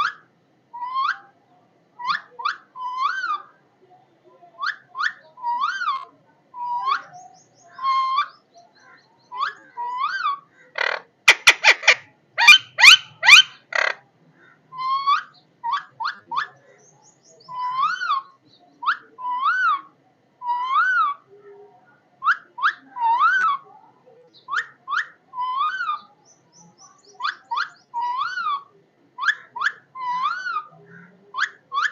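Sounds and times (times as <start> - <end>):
parrot whistled calls: 11.4 - 13.6.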